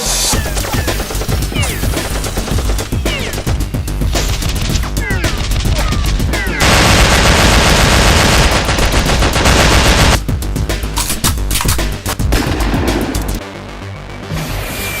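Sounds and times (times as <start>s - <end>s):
background music: 0.0s - 15.0s
automatic gunfire: 6.6s - 10.2s.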